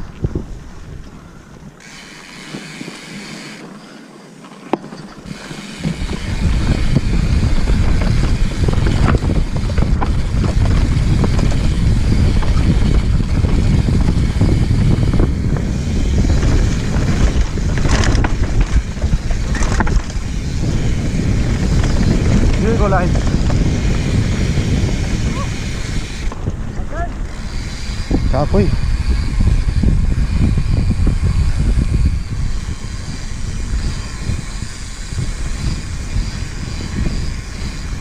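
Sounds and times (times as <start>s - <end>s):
wind buffeting microphone: 0.0s - 3.6s, 5.2s - 38.0s
bike tyre noise: 0.0s - 38.0s
chain and frame rattle: 3.7s - 5.6s.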